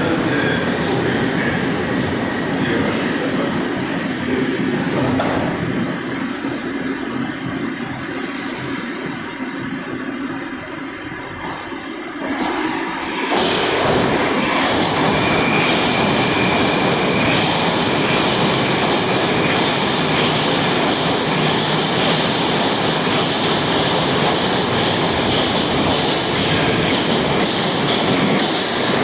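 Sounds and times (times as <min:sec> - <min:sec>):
train wheels rumbling on rail: 0:00.0 - 0:10.6, 0:11.2 - 0:29.0
high squeal of train wheels: 0:10.0 - 0:29.0.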